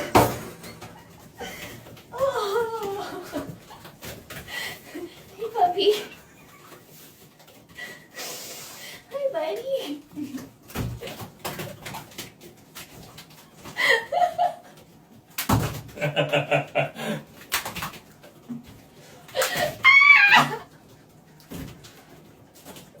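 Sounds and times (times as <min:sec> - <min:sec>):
people laughing: 0:16.0 - 0:17.2.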